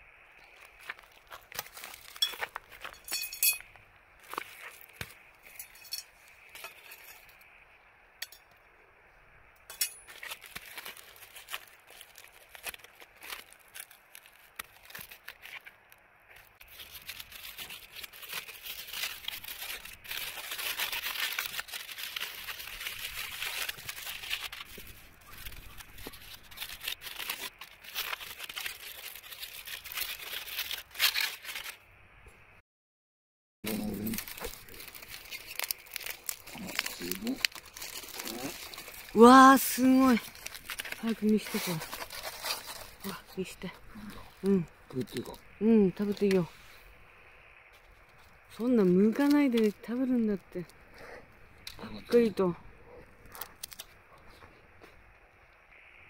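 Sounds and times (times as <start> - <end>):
crinkling and rustling wrapper: 0.1 - 7.7, 9.6 - 31.9, 33.7 - 56.0
stones clinking: 1.6 - 7.3.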